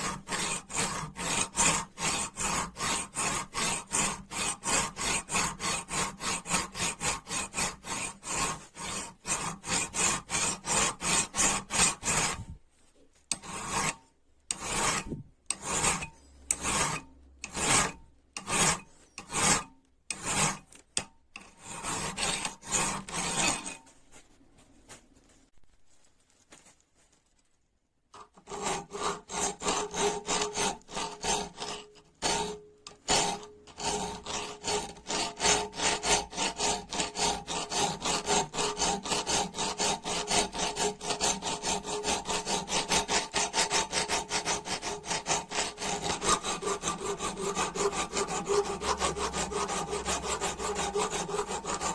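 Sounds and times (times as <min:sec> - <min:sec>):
abrasive rubbing rust off metal: 0:00.0 - 0:12.5, 0:13.3 - 0:20.7, 0:21.4 - 0:23.9, 0:28.2 - 0:51.9.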